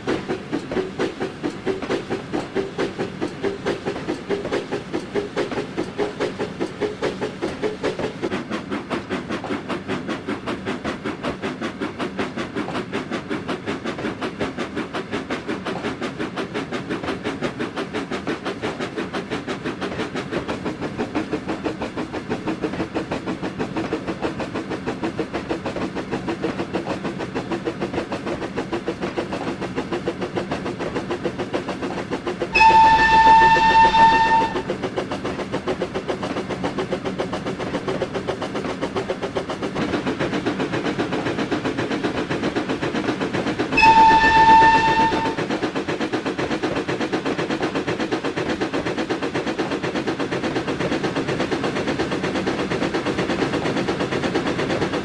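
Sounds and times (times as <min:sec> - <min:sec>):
steam locomotive chugging: 0:00.0 - 0:55.0
steam whistle blasts: 0:32.5 - 0:34.8, 0:43.7 - 0:45.8.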